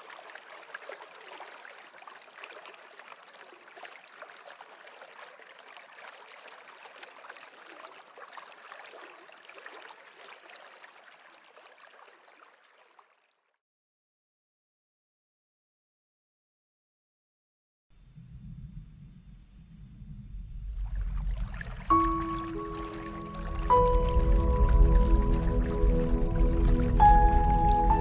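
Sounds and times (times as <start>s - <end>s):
stream water babbling: 0.0s - 13.5s, 20.8s - 28.0s.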